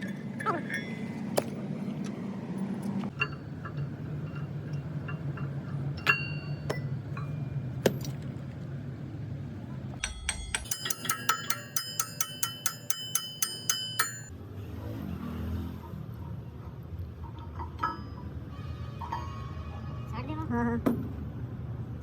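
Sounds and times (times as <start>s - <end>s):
tools clinking on metal: 3.1s - 8.2s, 10.0s - 14.3s, 17.4s - 18.4s
rapid metallic hammering taps: 10.0s - 14.3s.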